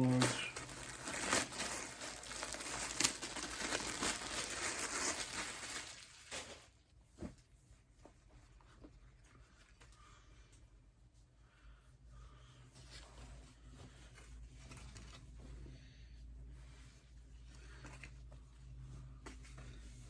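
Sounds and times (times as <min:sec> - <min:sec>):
packaging crinkling: 0:00.0 - 0:06.7.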